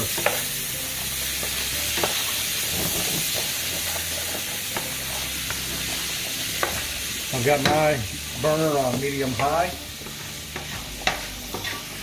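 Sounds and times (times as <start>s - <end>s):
food sizzling in frying pan: 0.0s - 12.0s
wooden spoon scraping pan: 8.8s - 12.0s.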